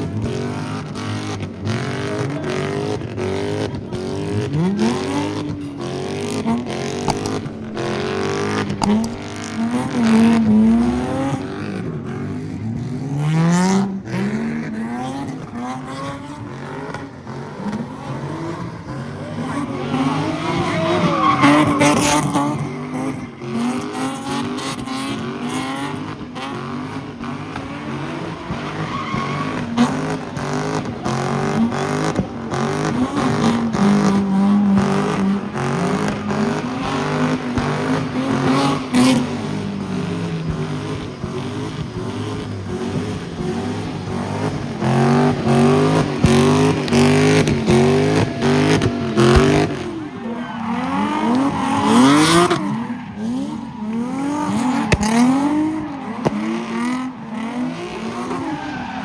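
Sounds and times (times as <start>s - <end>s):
car engines revving: 0.0s - 59.0s
tyres squealing: 19.4s - 25.3s.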